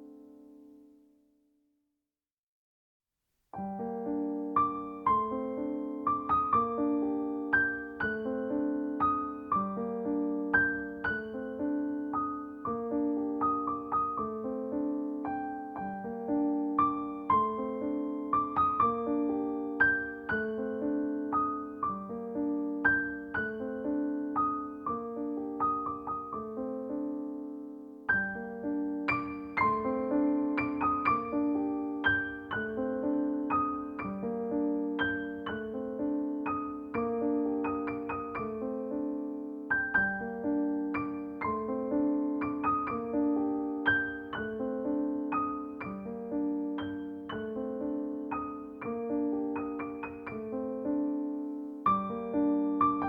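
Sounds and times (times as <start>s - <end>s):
piano music: 0.0s - 1.0s, 3.6s - 53.0s.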